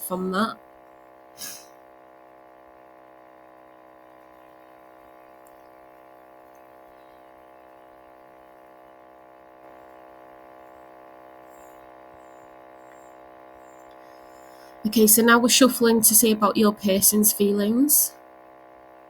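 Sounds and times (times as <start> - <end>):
steady electrical hum: 9.6 - 18.1.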